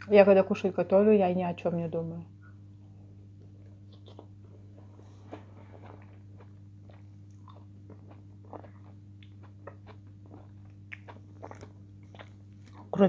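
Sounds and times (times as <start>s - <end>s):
low electrical hum: 0.0s - 13.0s
woman chewing food: 3.3s - 13.0s.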